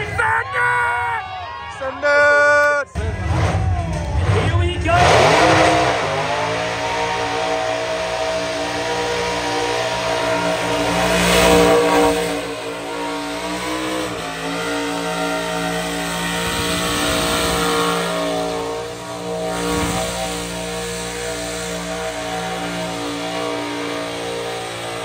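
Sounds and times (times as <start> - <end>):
car engine revving high: 3.0 - 25.0.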